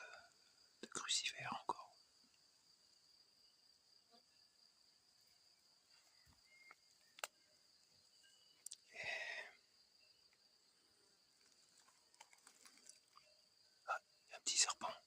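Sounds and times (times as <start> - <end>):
high-pitched insect song: 0.0 - 15.0
sharp click: 7.2 - 7.4.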